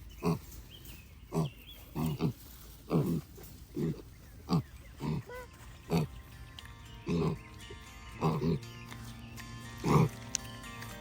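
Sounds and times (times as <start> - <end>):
pigs grunting: 0.0 - 6.3, 7.0 - 8.8, 9.7 - 10.2.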